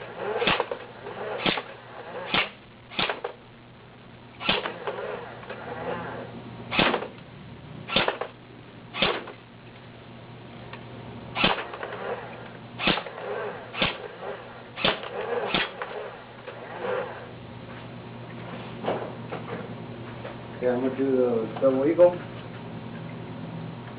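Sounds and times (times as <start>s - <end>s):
airsoft gun single shots: 0.4s - 0.8s, 1.4s - 1.7s, 2.3s - 3.4s, 4.4s - 5.0s, 6.7s - 7.2s, 7.9s - 8.4s, 9.0s - 9.4s, 11.4s - 12.1s, 12.8s - 14.1s, 14.8s - 15.9s.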